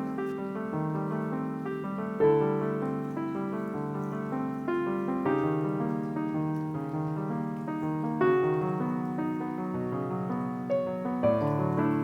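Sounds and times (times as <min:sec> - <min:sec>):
background piano music: 0:00.0 - 0:12.0.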